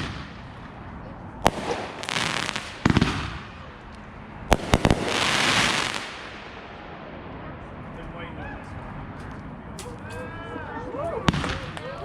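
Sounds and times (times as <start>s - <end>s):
fireworks bangs: 0.0s - 3.8s, 4.5s - 7.4s, 11.2s - 12.0s
fireworks crackling hiss: 1.4s - 3.8s, 4.5s - 6.6s.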